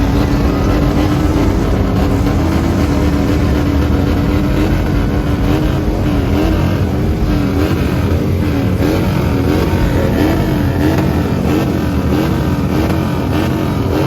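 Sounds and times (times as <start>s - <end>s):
motorcycle engine revving high: 0.0s - 14.0s.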